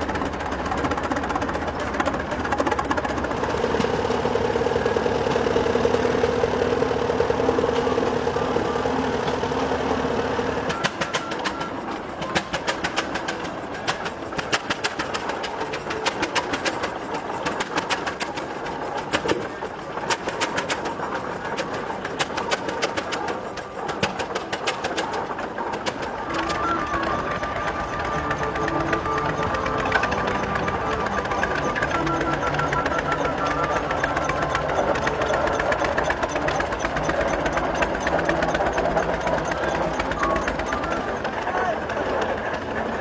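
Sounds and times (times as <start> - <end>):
sharp irregular clicks: 0.0 - 42.8
tractor engine drone: 0.0 - 43.0.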